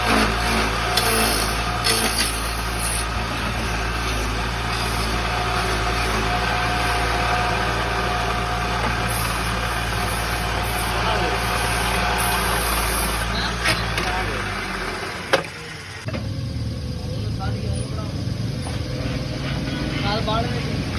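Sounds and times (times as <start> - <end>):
wood lathe motor hum: 0.0 - 16.1.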